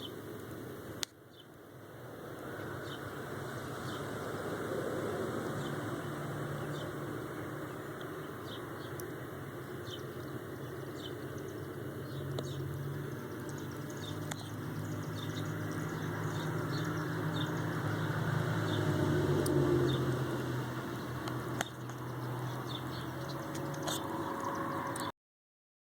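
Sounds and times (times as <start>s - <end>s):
steady low hum: 0.0s - 24.8s.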